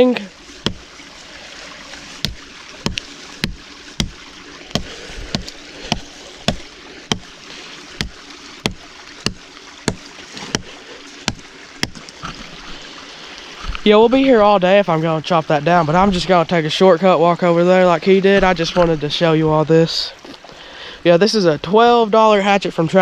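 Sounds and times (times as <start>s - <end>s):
hatchet chopping wood: 0.6s - 0.9s, 2.2s - 7.4s, 8.0s - 12.2s.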